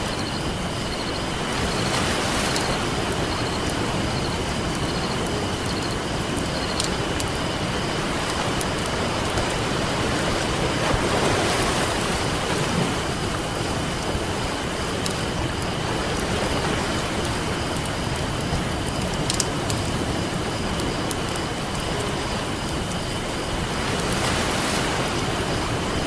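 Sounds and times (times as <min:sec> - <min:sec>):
ocean surf: 0:00.0 - 0:26.0
campfire crackling and popping: 0:02.5 - 0:10.6, 0:14.1 - 0:23.2.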